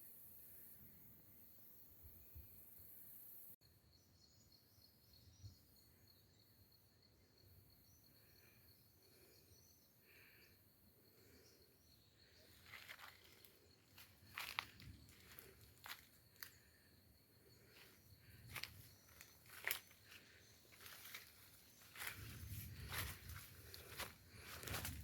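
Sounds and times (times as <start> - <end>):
faint chirps: 0.0 - 25.0
footsteps: 12.6 - 16.5, 17.7 - 25.0.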